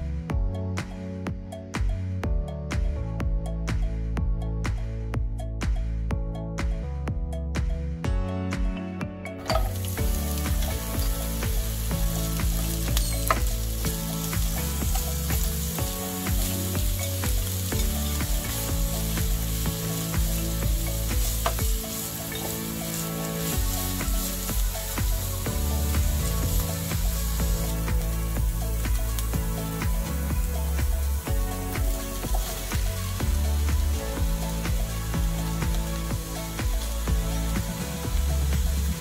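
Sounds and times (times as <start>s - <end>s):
vegetables sizzling in a pan: 9.5s - 39.0s.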